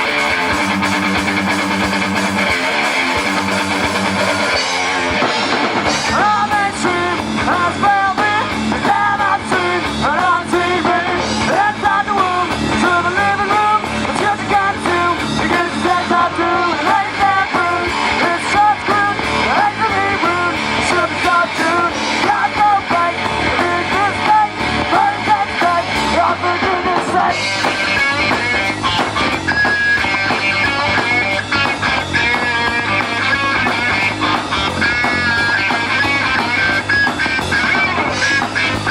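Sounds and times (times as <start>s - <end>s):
electric guitar: 0.0s - 38.9s
steady drum beat: 0.0s - 38.9s.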